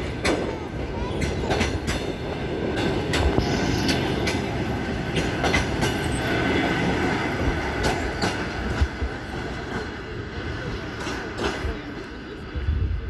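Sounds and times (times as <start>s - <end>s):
train wheels clacking over rail joints: 0.0s - 12.1s.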